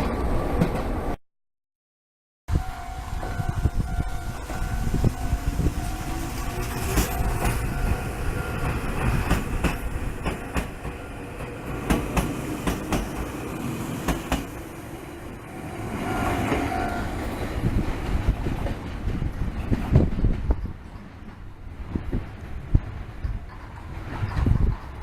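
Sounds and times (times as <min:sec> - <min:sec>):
train motor whine: 0:02.5 - 0:18.0
train rumble: 0:02.5 - 0:25.0
train wheels clacking over rail joints: 0:04.5 - 0:14.6, 0:18.0 - 0:25.0.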